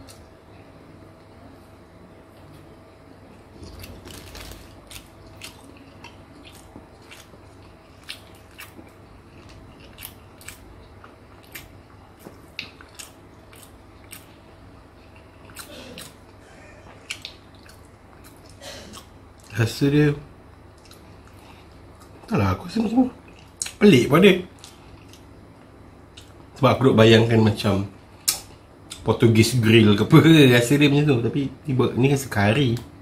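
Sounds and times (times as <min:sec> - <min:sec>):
man chewing with wet mouth clicks: 0:03.6 - 0:16.4, 0:17.0 - 0:19.6, 0:20.7 - 0:22.3, 0:23.2 - 0:23.8, 0:24.5 - 0:26.6, 0:28.2 - 0:29.1.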